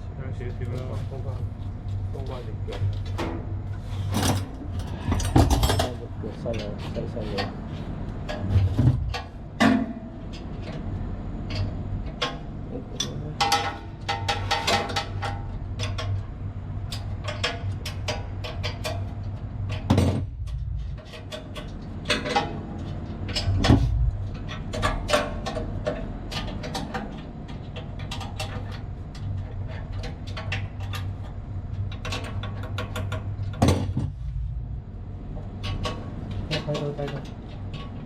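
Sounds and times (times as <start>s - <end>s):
low machine-room hum: 0.0s - 38.0s.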